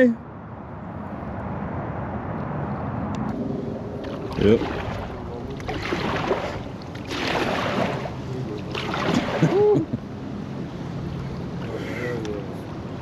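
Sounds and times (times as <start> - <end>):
water splashing from kayak: 3.7 - 9.9.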